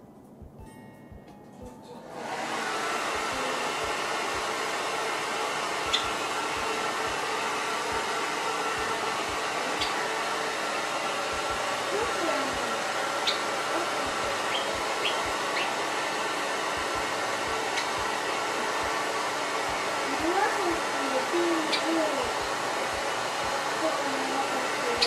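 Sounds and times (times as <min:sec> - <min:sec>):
hair dryer blowing: 0:02.0 - 0:25.0
sparrow chirps: 0:13.2 - 0:13.5, 0:14.5 - 0:15.7.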